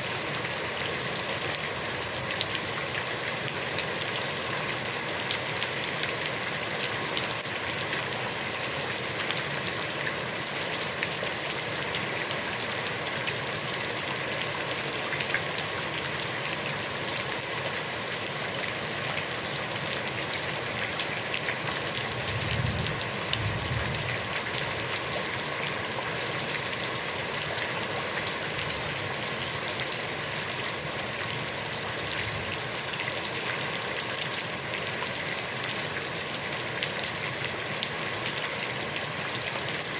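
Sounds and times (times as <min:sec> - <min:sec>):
heavy rain on a pond: 0:00.0 - 0:39.9
low rumble: 0:22.2 - 0:24.4.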